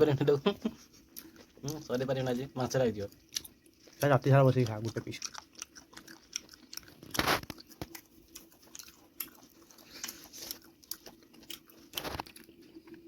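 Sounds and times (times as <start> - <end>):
wet chewing smacks: 0.7 - 13.0
biting into food: 4.5 - 13.0.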